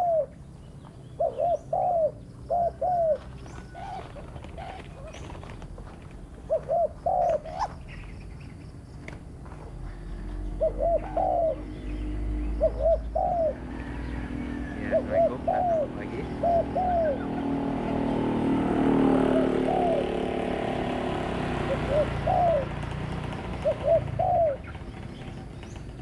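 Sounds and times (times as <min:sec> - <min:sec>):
dove cooing: 0:00.0 - 0:00.4, 0:01.1 - 0:05.4, 0:06.4 - 0:07.8, 0:09.9 - 0:26.0
steady background hum: 0:06.5 - 0:26.0.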